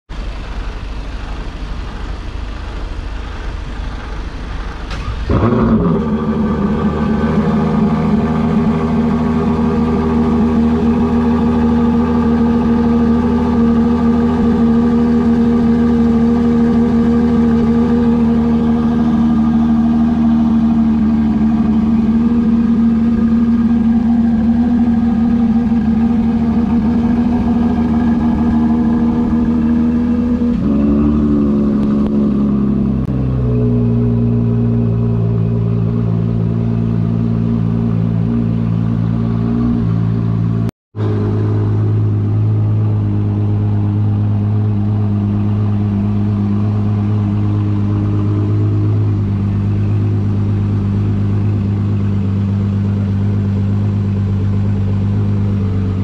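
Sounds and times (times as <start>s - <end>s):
car engine idling: 0.1s - 56.0s
car engine starting and revving: 0.2s - 56.0s.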